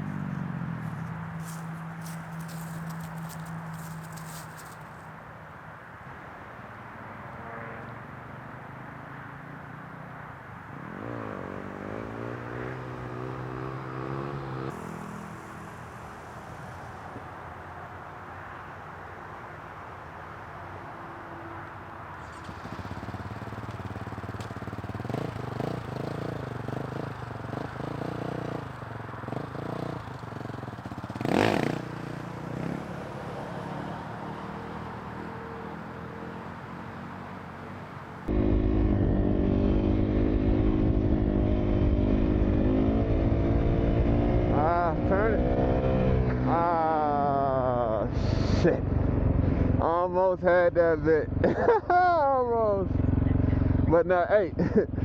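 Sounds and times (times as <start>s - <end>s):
dirt bike engine revving: 1.4s - 4.9s, 11.0s - 16.5s, 22.2s - 33.0s, 38.3s - 47.2s
loud rushing noise: 14.7s - 18.1s.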